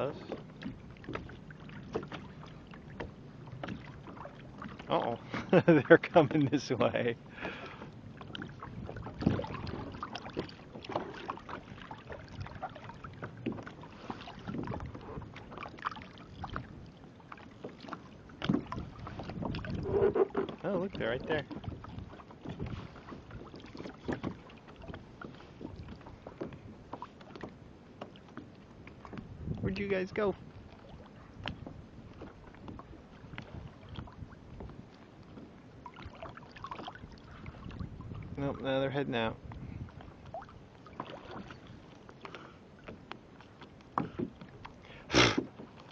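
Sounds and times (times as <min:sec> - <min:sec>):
small splashes and knocks: 0:00.0 - 0:06.4, 0:07.4 - 0:29.7, 0:30.5 - 0:38.7, 0:40.2 - 0:45.9
water lapping against kayak hull: 0:00.0 - 0:45.9
low rumble on microphone: 0:07.0 - 0:10.4, 0:18.5 - 0:23.5, 0:29.0 - 0:35.0, 0:36.9 - 0:40.5.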